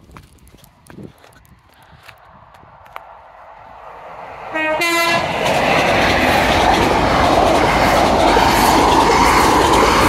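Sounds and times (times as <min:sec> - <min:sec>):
train passing at speed: 0:02.9 - 0:10.0
two-note train horn: 0:04.5 - 0:05.3.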